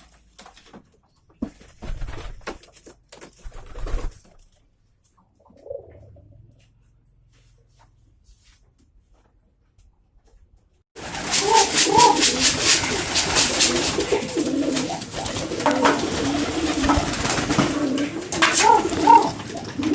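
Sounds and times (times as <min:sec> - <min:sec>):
pigeons cooing: 0:05.2 - 0:06.6, 0:11.0 - 0:19.9
loud rustling: 0:11.0 - 0:19.9.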